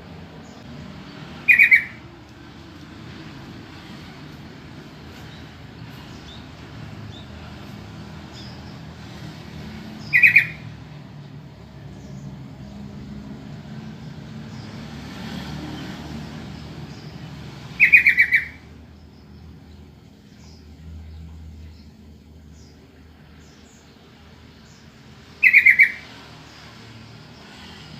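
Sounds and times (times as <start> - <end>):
bird chattering call notes: 1.4 - 2.0, 10.0 - 10.6, 17.8 - 18.6, 25.4 - 26.0.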